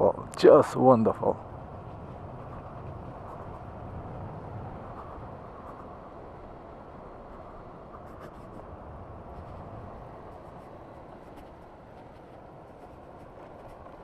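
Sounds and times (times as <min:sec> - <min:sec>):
wind rushing: 0:01.2 - 0:14.0.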